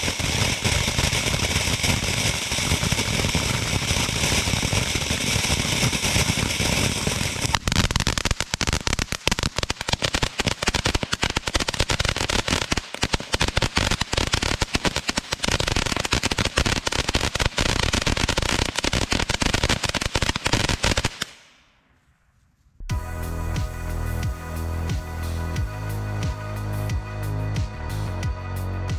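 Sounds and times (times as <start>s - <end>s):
firework fountain hissing and crackling: 0.0s - 21.6s.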